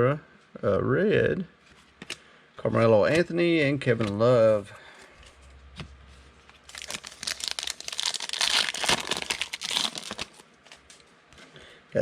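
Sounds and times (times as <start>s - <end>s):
plastic foil wrapper crinkling: 6.6s - 11.0s.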